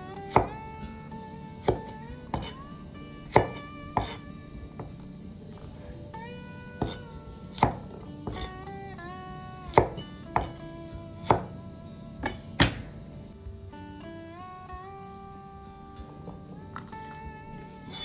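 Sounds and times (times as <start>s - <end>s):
slide guitar music: 0.0s - 18.0s
knife chopping on cutting board: 0.3s - 0.6s, 1.6s - 2.6s, 3.3s - 4.2s, 4.8s - 6.2s, 6.8s - 8.5s, 9.7s - 10.6s, 11.2s - 11.6s, 12.2s - 13.2s.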